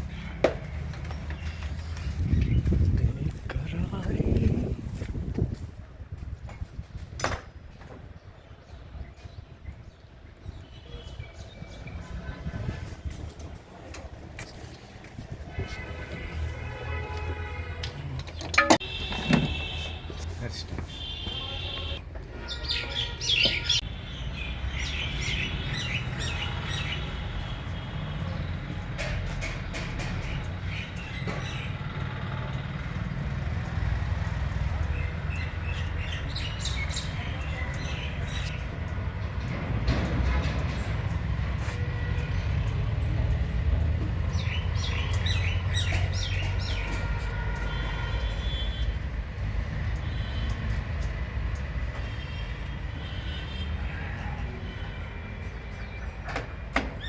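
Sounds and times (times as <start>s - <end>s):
small birds chirping: 21.8s - 27.6s, 44.2s - 47.1s.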